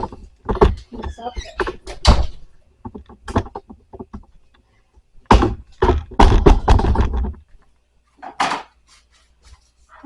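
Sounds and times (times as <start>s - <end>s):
knocks and clatter: 0.0s - 4.4s, 5.2s - 7.6s
household objects knocking: 5.2s - 7.5s.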